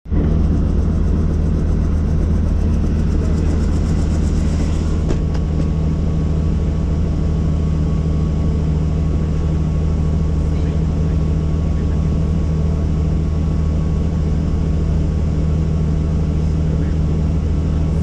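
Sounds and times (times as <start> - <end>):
helicopter engine and rotor drone: 0.0 - 18.0.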